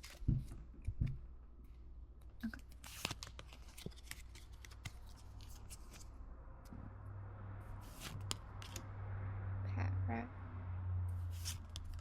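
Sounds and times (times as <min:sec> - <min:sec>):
trading cards clicking and sliding: 0:02.7 - 0:06.1, 0:11.3 - 0:12.0.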